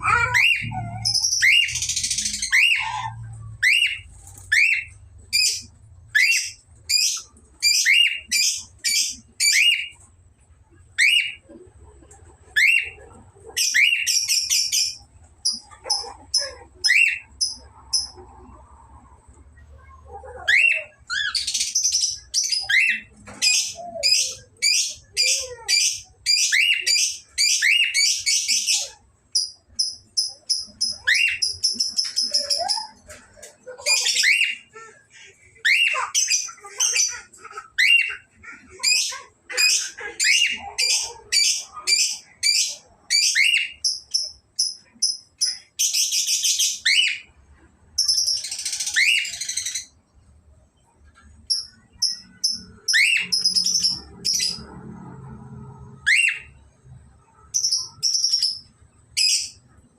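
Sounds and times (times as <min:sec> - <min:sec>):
cockatiels chirping and whistling: 0:00.0 - 0:10.0, 0:11.0 - 0:11.4, 0:12.6 - 0:18.2, 0:20.2 - 0:34.7, 0:35.6 - 0:47.3, 0:48.0 - 0:50.0, 0:51.5 - 0:54.6, 0:56.1 - 0:56.6.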